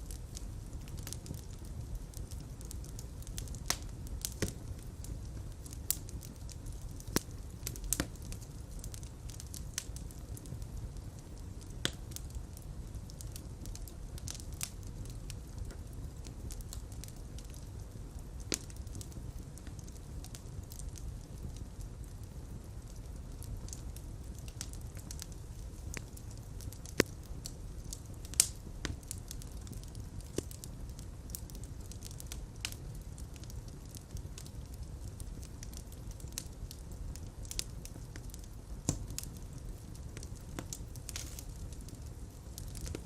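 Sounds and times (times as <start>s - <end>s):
fire crackling: 0.0s - 43.0s.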